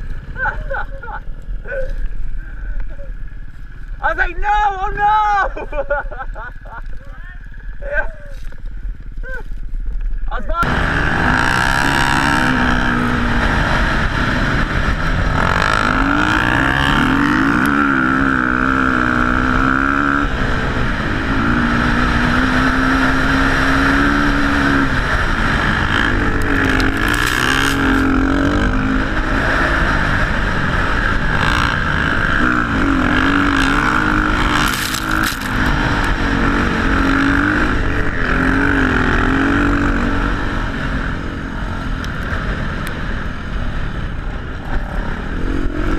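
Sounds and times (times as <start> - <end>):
motocross bike engine revving: 10.6 - 45.9.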